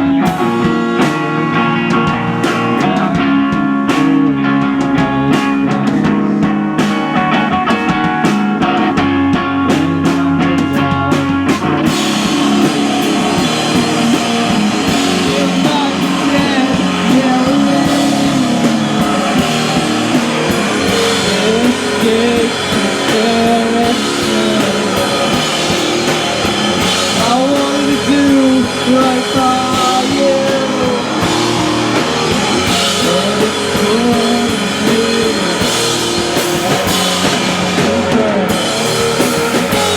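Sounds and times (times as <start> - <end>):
drums: 0.0 - 39.9
live rock band playing: 0.0 - 39.9
solo electric guitar: 0.0 - 39.9
person singing: 11.8 - 39.9.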